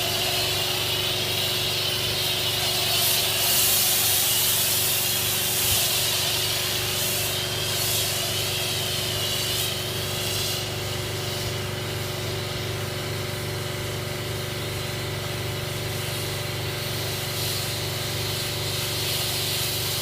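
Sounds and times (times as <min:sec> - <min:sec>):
spraying water jet hiss: 0:00.0 - 0:12.4, 0:16.0 - 0:20.0
pressure washer humming: 0:00.0 - 0:20.0.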